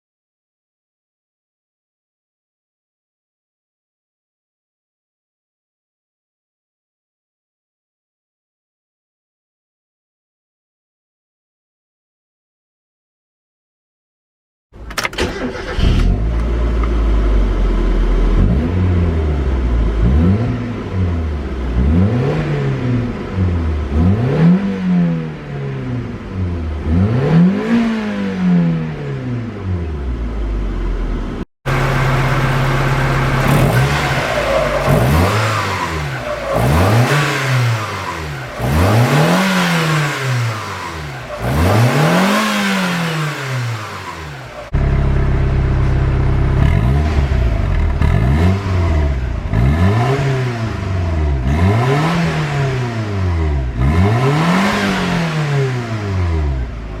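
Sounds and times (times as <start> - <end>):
car engine revving: 15.2 - 57.0.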